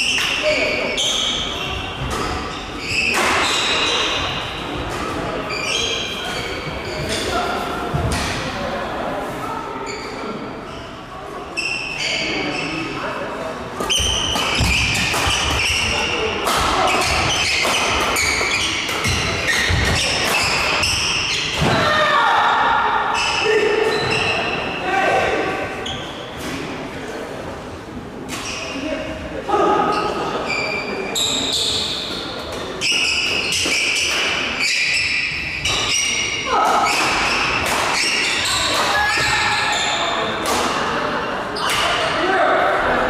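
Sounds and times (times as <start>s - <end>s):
shoes squeaking on floor: 0.0s - 4.4s, 5.4s - 7.5s, 9.8s - 12.9s, 16.9s - 21.6s, 23.2s - 24.8s, 29.9s - 40.2s
rackets hitting shuttlecock: 13.8s - 21.8s, 36.7s - 39.4s
racket hitting shuttlecock: 36.8s - 39.4s.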